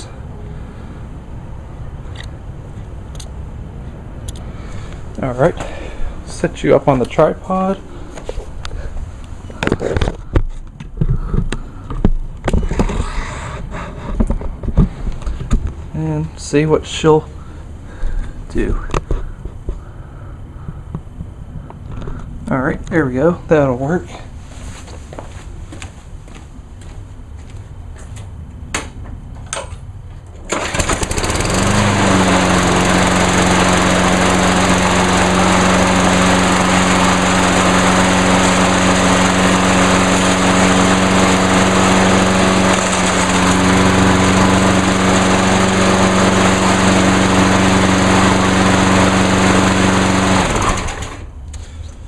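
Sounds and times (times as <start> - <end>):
lawn mower engine running: 0.2 - 10.4, 30.4 - 51.4
pull-start cord: 30.4 - 32.2.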